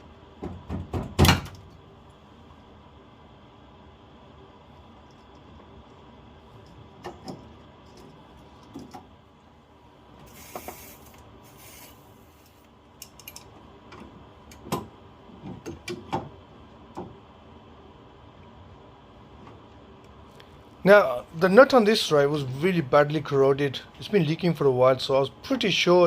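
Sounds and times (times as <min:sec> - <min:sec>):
short hiss: 0:10.2 - 0:12.6.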